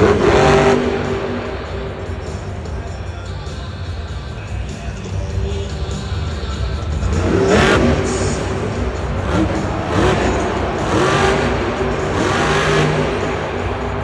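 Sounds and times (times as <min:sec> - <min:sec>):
truck engine revving hard: 0:00.0 - 0:04.0, 0:05.3 - 0:14.0.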